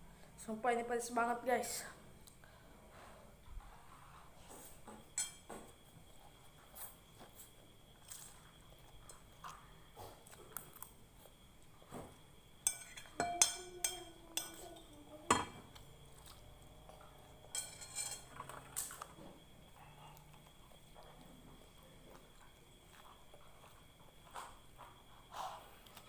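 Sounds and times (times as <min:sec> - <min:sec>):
cutlery clinking on a plate: 0:05.1 - 0:05.5, 0:12.6 - 0:14.7, 0:17.5 - 0:18.6.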